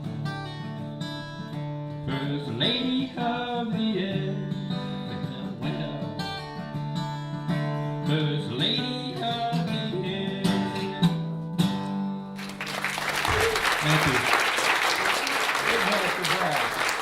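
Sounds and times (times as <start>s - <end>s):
acoustic guitar strummed and picked: 0.0s - 12.5s.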